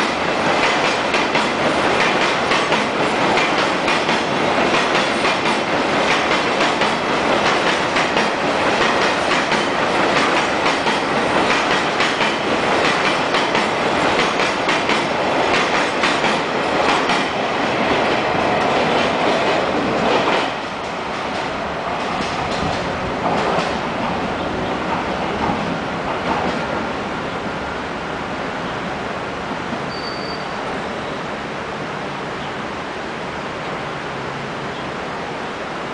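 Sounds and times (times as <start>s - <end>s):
train wheels clattering over rail joints: 0.4s - 24.2s.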